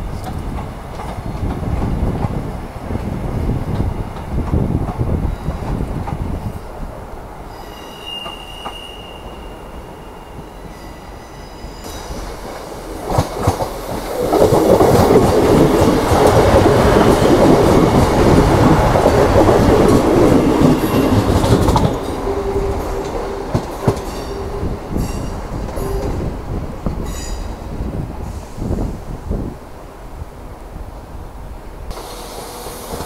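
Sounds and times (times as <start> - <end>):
faint wheel squeals: 7.5 - 12.0.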